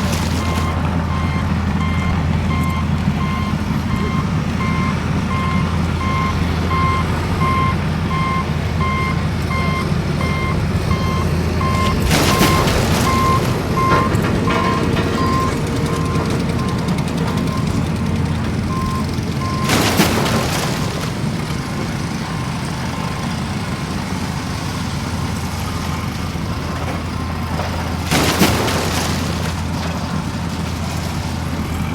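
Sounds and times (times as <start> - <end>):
heavy vehicle engine rumbling: 0.0 - 31.9
reversing beeps: 0.3 - 17.8, 18.7 - 19.8.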